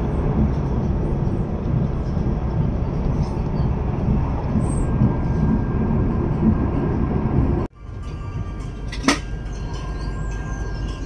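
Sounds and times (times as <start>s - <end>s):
electric train rumbling: 0.0s - 11.0s.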